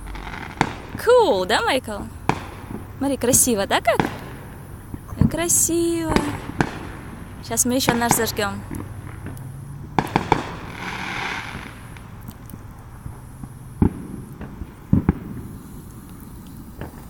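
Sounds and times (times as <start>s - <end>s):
distant firework bangs: 0.0s - 17.0s
firework hiss: 0.0s - 17.0s.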